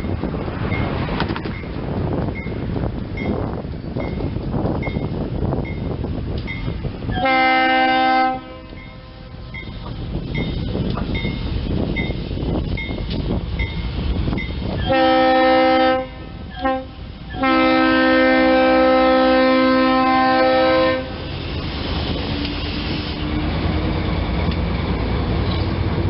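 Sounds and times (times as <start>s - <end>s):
locomotive engine and wheels rumbling: 0.0s - 26.0s
train air horn blasts: 7.2s - 9.4s, 14.8s - 21.2s
locomotive bell ringing: 8.7s - 14.8s.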